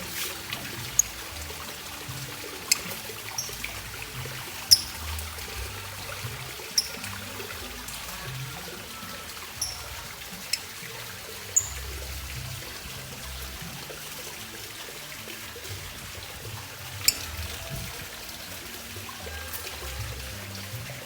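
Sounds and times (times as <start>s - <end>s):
lovebird chirping: 0.9s - 1.2s, 2.6s - 5.2s, 6.8s - 7.1s, 9.6s - 10.7s, 11.6s - 11.8s, 17.0s - 17.5s.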